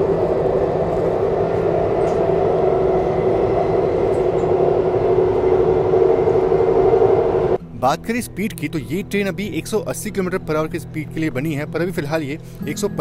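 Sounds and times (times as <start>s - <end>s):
train cabin hum: 0.0s - 7.6s.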